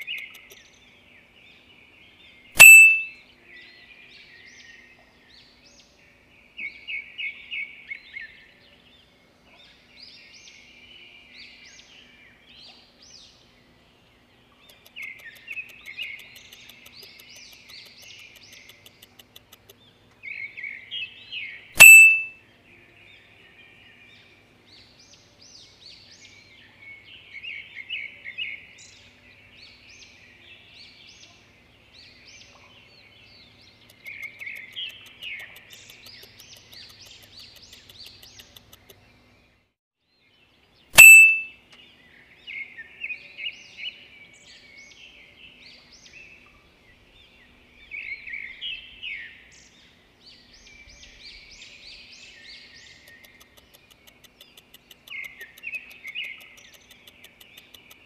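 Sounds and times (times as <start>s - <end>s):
small birds chirping: 0.0s - 58.0s
loud ringing chime: 2.6s - 3.1s, 21.8s - 22.3s, 41.0s - 41.5s.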